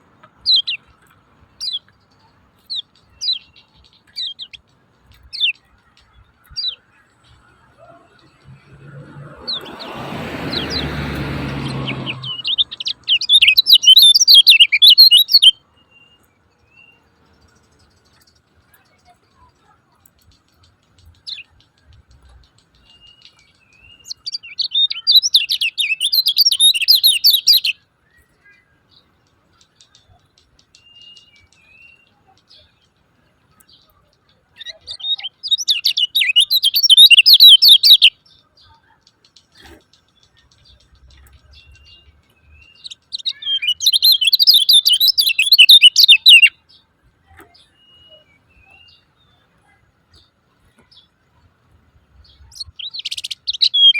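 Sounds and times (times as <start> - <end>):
bird fast high chirping: 1.6 - 15.5, 20.2 - 27.8, 34.6 - 38.9, 39.6 - 46.6, 52.4 - 53.9.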